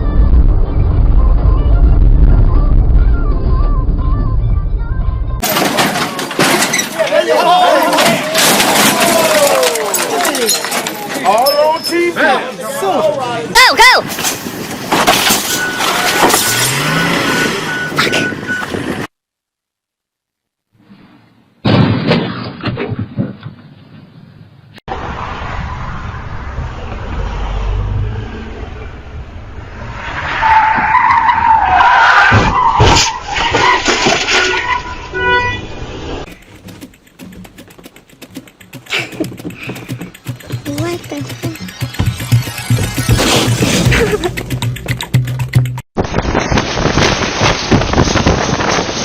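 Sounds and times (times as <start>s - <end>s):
road vehicle noise: 0.0s - 19.1s, 23.3s - 49.0s
loud traffic noise: 14.1s - 19.0s, 24.9s - 37.0s
car horn honking: 34.3s - 36.0s
irregular clicking: 36.3s - 43.1s
sharp knocks: 36.3s - 43.6s
rapid electronic beeping: 36.3s - 45.8s.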